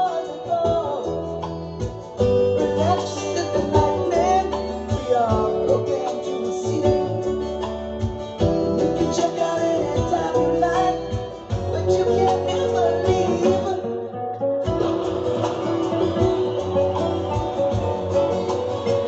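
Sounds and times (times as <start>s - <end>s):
person singing: 0.0s - 7.7s, 8.6s - 19.0s
acoustic guitar playing: 0.0s - 19.0s.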